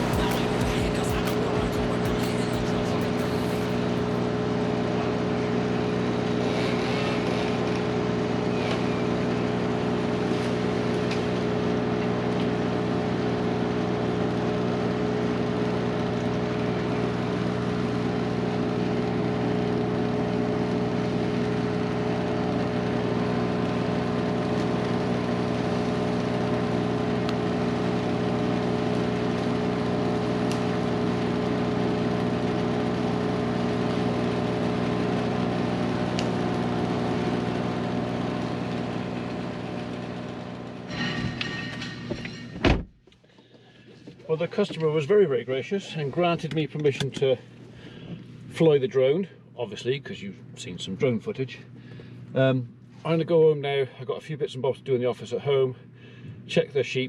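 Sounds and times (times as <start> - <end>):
machine running steadily: 0.0 - 42.6.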